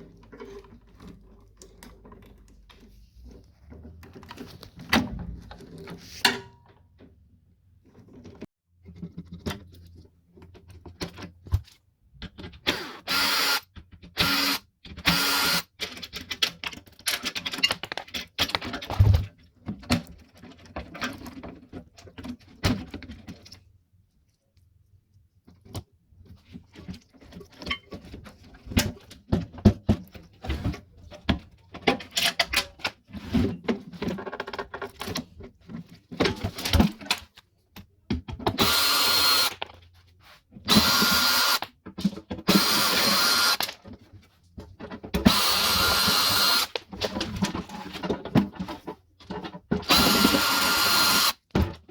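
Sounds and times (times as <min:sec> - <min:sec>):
power drill running: 0:12.7 - 0:13.6, 0:14.2 - 0:15.6, 0:38.6 - 0:39.6, 0:40.7 - 0:41.7, 0:42.5 - 0:43.7, 0:45.3 - 0:46.8, 0:49.9 - 0:51.4.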